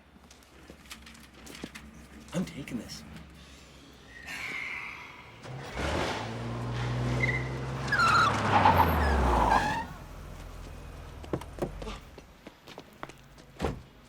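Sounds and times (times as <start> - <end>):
tyres squealing: 4.0 - 10.7
car engine revving: 5.4 - 11.8.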